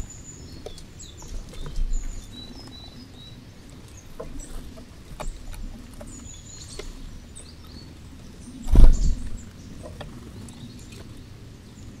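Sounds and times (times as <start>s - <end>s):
loud low thump: 8.7s - 9.4s.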